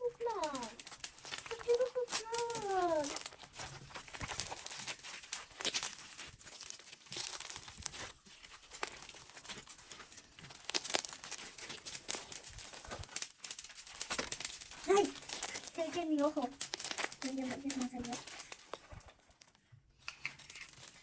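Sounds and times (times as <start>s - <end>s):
slime squishing and popping: 10.4s - 14.3s.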